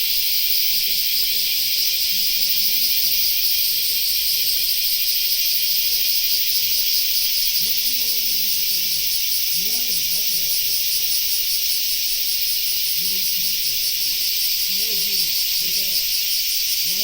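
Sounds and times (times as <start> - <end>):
loud high-pitched hiss: 0.0 - 17.0
faint muffled voice: 5.5 - 11.5, 12.7 - 16.1.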